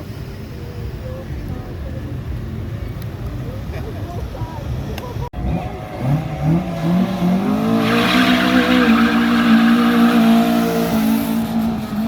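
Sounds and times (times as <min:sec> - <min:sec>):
car engine revving: 0:05.4 - 0:12.0
tyres squealing in wheelspin: 0:06.0 - 0:12.0.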